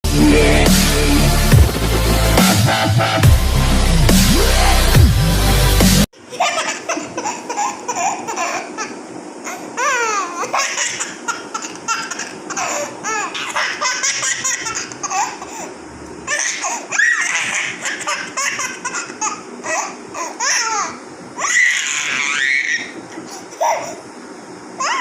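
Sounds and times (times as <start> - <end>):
electronic music with heavy beat: 0.1 - 6.1
baby laughing and squealing: 6.3 - 15.7, 16.3 - 24.0, 24.8 - 25.0.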